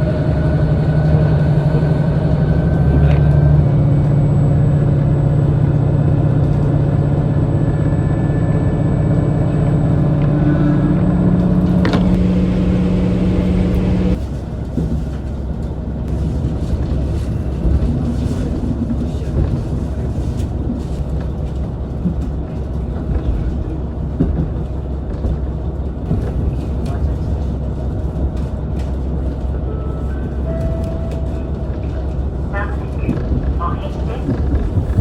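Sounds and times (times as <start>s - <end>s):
diesel engine droning: 0.0s - 14.2s
train rumbling on rails: 0.0s - 35.0s.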